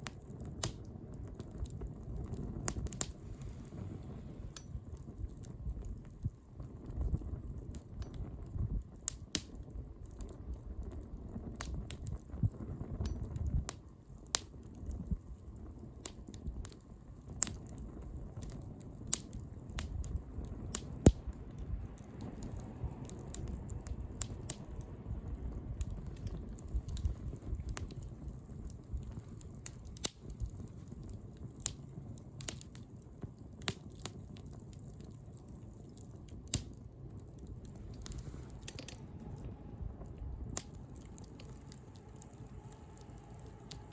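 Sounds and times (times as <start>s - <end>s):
wood bonfire crackling: 0.0s - 43.9s.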